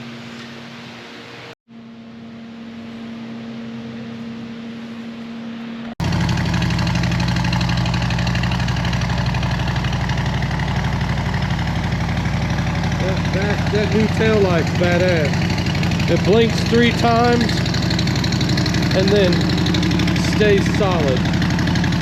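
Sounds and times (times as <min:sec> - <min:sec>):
steady hum: 0:00.0 - 0:22.0
motorcycle engine idling: 0:06.0 - 0:22.0.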